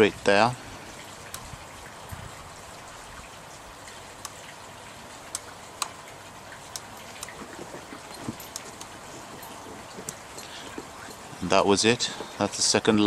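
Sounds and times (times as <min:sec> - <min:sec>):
faint steady hiss: 0:00.0 - 0:13.0
light irregular clicks: 0:03.9 - 0:04.6, 0:05.3 - 0:11.3.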